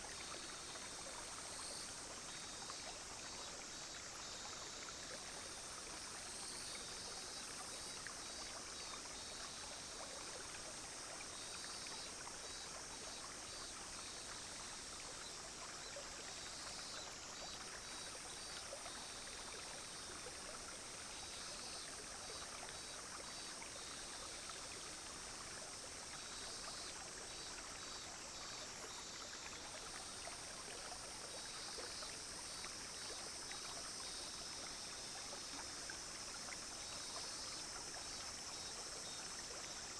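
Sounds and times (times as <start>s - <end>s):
shallow stream burbling: 0.0s - 39.9s
rapid pulsing insect chirps: 0.1s - 39.9s
cicadas buzzing: 10.6s - 24.9s, 25.8s - 39.9s.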